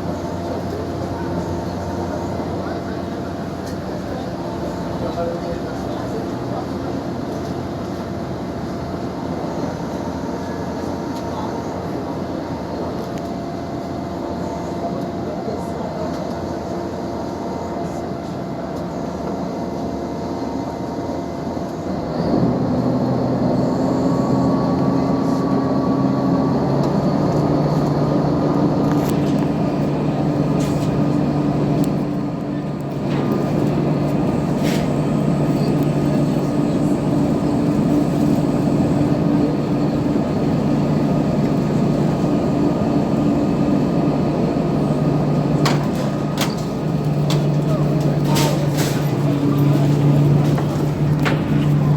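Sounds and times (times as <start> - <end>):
marine diesel engine running: 22.0 - 51.9.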